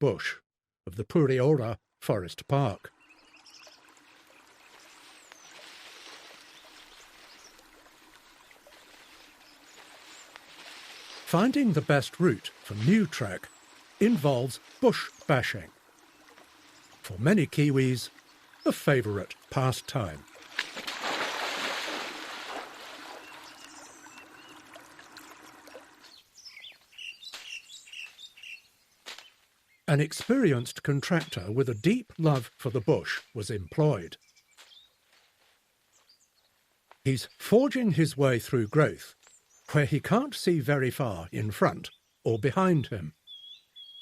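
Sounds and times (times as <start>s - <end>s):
birds chirping: 2.1s - 35.2s, 35.9s - 44.0s
running water rushing: 2.9s - 26.5s.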